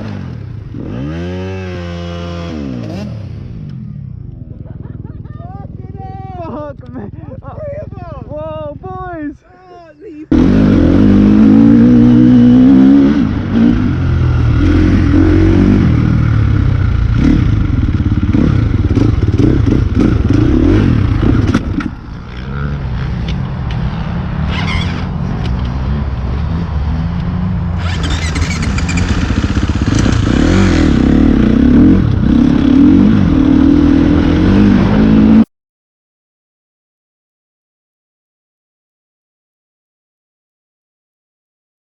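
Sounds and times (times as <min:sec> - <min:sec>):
motocross bike engine revving: 0:00.0 - 0:04.0, 0:10.3 - 0:35.5.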